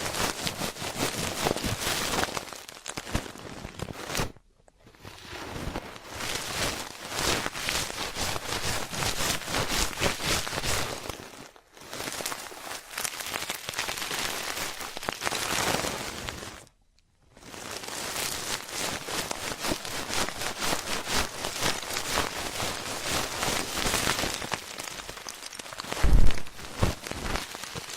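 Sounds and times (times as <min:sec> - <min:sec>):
ear pick scratching microphone: 0:26.0 - 0:27.4.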